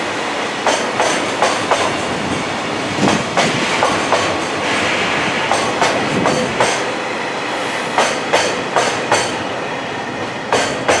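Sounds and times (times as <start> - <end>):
rumble of rolling train wheels: 0.0 - 11.0
train wheels clacking over rail joint: 0.6 - 2.2, 3.0 - 6.9, 7.7 - 9.4, 10.5 - 11.0.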